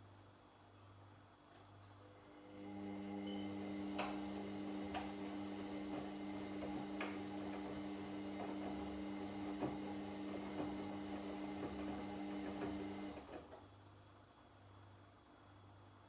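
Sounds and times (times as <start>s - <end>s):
washing machine motor humming: 2.2s - 13.4s.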